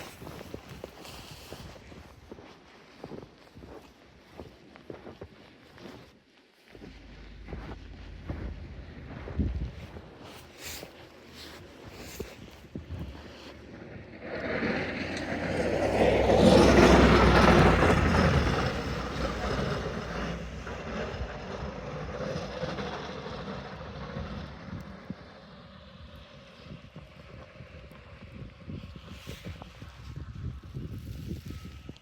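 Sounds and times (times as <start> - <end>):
vehicle driving past on snow: 6.8 - 30.1.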